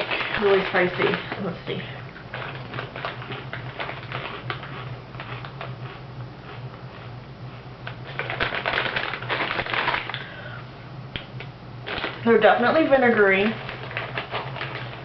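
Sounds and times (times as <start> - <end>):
potato chips crunching while chewing: 0.0 - 7.2, 7.9 - 10.4, 11.8 - 12.3, 13.5 - 15.0.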